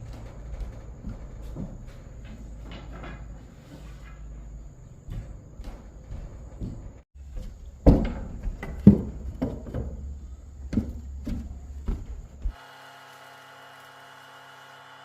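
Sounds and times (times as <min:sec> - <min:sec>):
knocks and thuds: 0:05.0 - 0:12.5.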